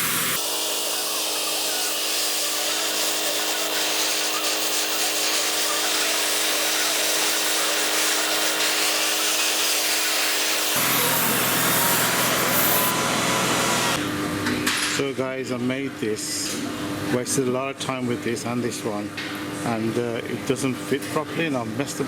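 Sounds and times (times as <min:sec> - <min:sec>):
metal cutting hiss: 0:00.0 - 0:13.0
lathe motor hum: 0:00.0 - 0:14.0.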